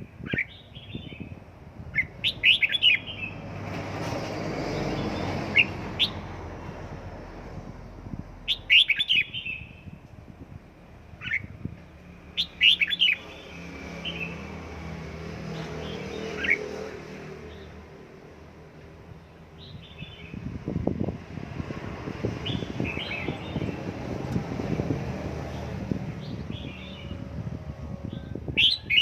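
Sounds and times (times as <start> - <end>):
bird chirping in quick bursts: 0.2 - 3.4, 8.5 - 10.0, 12.3 - 14.4.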